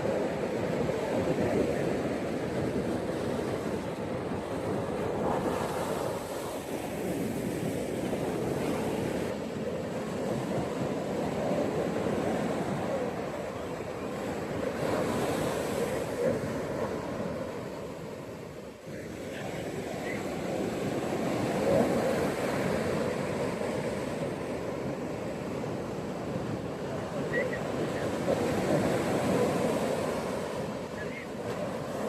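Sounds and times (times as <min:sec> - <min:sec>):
ocean surf breaking on beach: 0:00.0 - 0:32.0
wind noise: 0:00.0 - 0:32.0.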